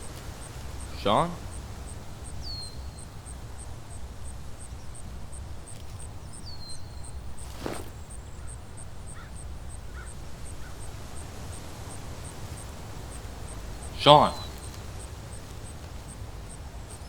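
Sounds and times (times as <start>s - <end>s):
bird calls: 0.0s - 17.0s
harsh bird call: 0.0s - 17.0s
bird falling whistle: 7.4s - 8.2s.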